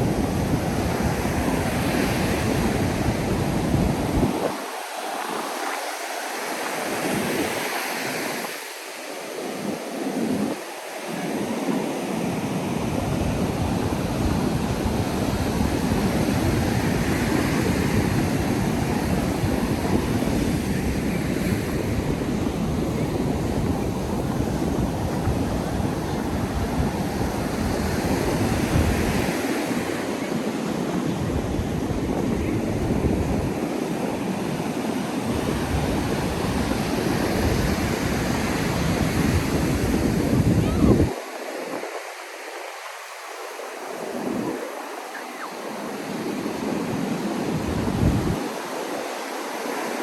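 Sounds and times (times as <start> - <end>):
wind buffeting microphone: 0.0 - 5.8, 11.3 - 42.0, 45.7 - 48.6
ocean surf breaking on beach: 0.0 - 50.0.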